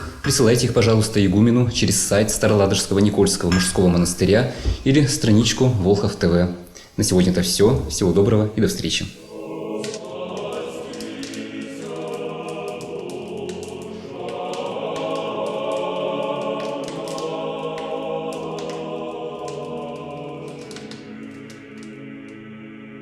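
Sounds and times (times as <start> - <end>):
choir singing slow chords: 9.2 - 23.0.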